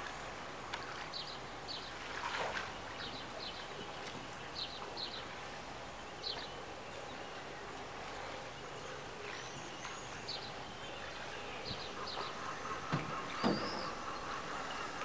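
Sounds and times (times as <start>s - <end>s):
outdoor background noise: 0.0s - 15.0s
high bird chirps: 11.6s - 14.2s
high gliding bird call: 11.6s - 15.0s.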